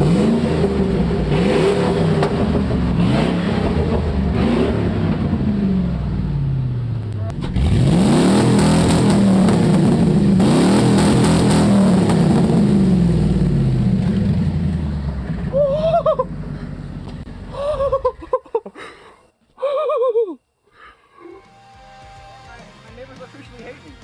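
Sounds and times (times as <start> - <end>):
truck engine revving: 0.0 - 17.7.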